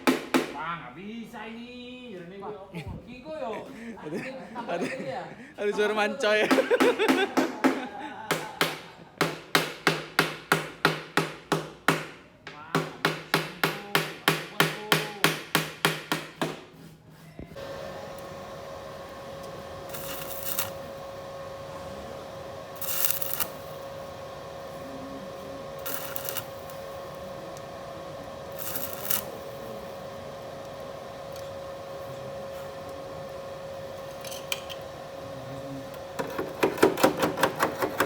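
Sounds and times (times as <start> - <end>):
machine hum with thin tone: 17.4 - 38.0
short hissing bursts: 19.8 - 21.1, 22.7 - 27.5, 28.4 - 30.1.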